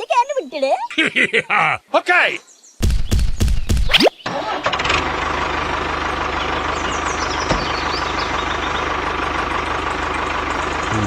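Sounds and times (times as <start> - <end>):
small engine idling: 4.2 - 11.0.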